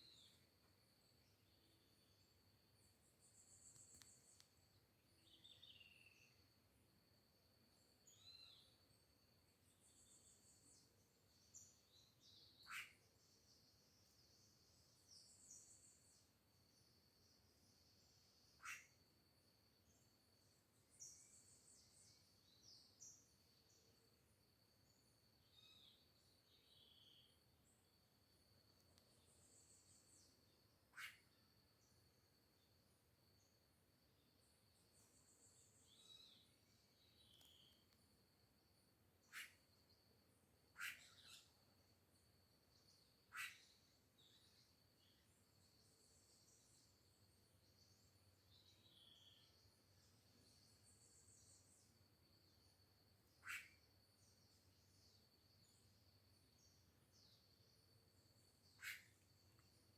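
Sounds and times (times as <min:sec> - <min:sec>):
insect droning: 0:00.0 - 0:59.9
soft chirping: 0:01.3 - 0:06.5, 0:09.7 - 0:16.2, 0:34.8 - 0:38.0, 0:39.2 - 0:39.7, 0:40.7 - 0:41.6, 0:42.8 - 0:47.0, 0:53.4 - 0:55.8, 0:58.4 - 0:59.7
sharp bird calls: 0:12.6 - 0:13.0, 0:18.6 - 0:19.0, 0:30.9 - 0:31.3, 0:39.2 - 0:39.6, 0:40.8 - 0:41.5, 0:43.3 - 0:43.8, 0:53.4 - 0:53.8, 0:58.7 - 0:59.2.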